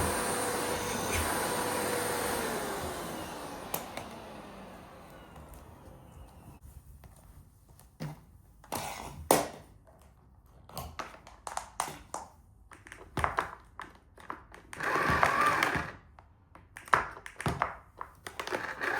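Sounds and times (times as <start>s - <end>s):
vacuum cleaner clicks and knocks: 0.0s - 5.7s.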